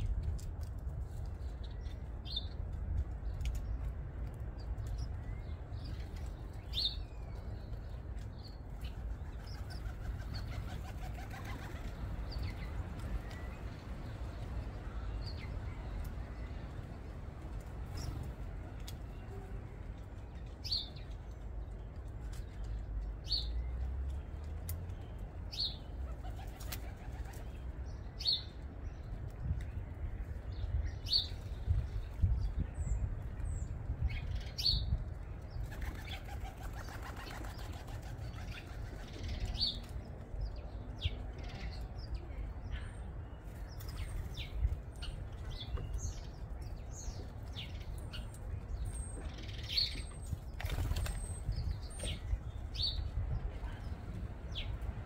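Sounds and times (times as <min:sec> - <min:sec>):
bird wings flapping: 0:35.7 - 0:38.2, 0:50.5 - 0:51.4.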